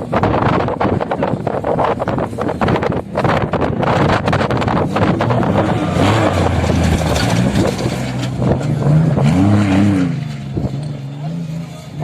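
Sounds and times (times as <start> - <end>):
wind noise on microphone: 0.0 - 10.8
off-road vehicle engine revving: 0.0 - 12.0
terrain noise: 0.0 - 12.0.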